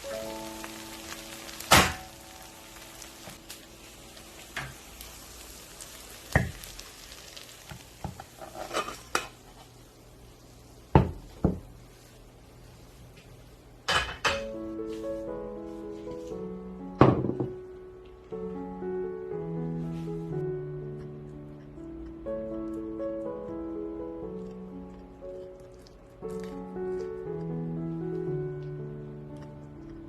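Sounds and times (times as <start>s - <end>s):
food sizzling in a frying pan: 0.0s - 13.0s
cookware clinking and knocking: 13.9s - 14.5s, 17.0s - 17.6s.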